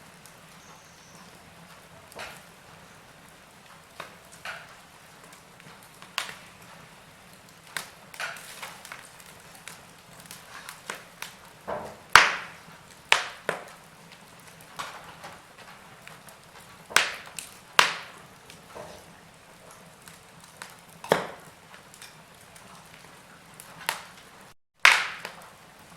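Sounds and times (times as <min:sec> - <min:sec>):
fire popping: 0:00.0 - 0:25.9
wood fire crackling: 0:00.0 - 0:25.9.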